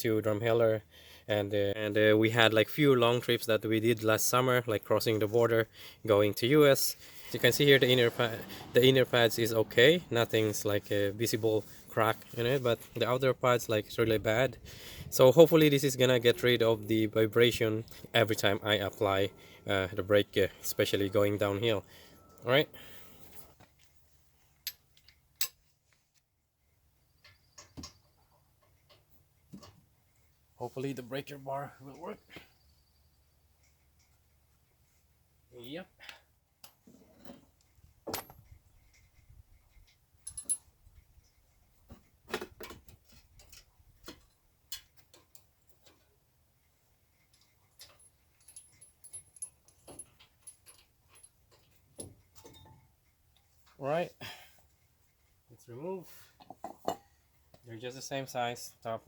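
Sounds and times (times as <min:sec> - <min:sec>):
hand tools clicking and clinking: 0:47.3 - 0:52.8.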